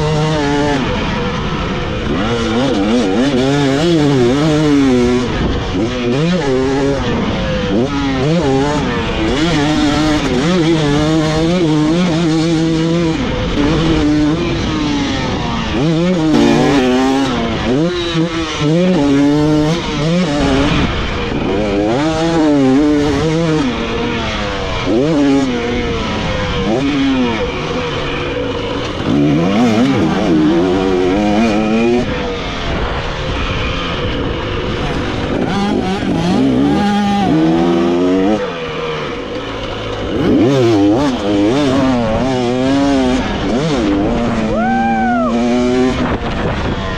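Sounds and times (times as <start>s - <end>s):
dirt bike engine revving: 15.8s - 20.8s, 34.7s - 44.5s
wind noise: 43.2s - 46.9s.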